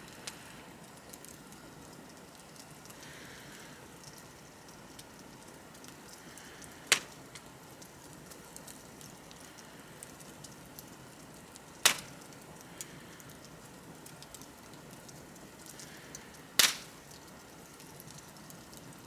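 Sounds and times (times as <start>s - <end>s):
bonfire crackling: 0.0s - 19.0s
burning wood popping loudly: 6.4s - 7.6s, 10.8s - 12.5s, 14.1s - 17.3s.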